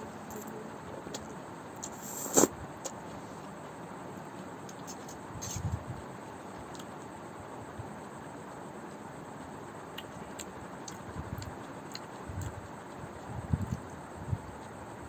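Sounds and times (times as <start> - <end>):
background hiss: 0.0 - 6.4.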